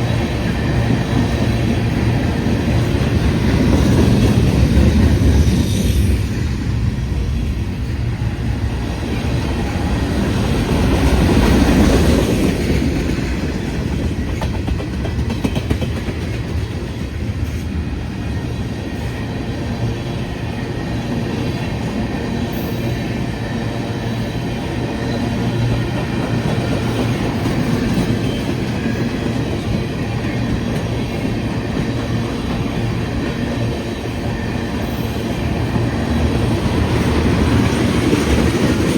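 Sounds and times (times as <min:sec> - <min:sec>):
freight train wheels on rails: 0:00.0 - 0:38.9.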